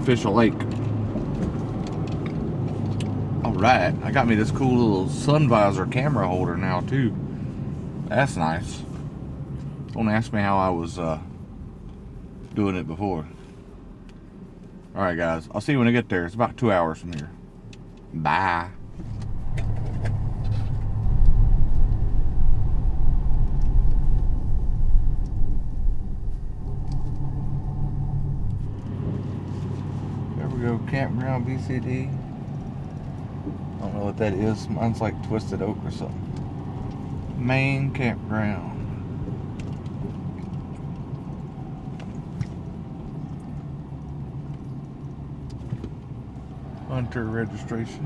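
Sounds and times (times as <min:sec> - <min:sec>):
road and engine rumble in truck cab: 0:00.0 - 0:48.0.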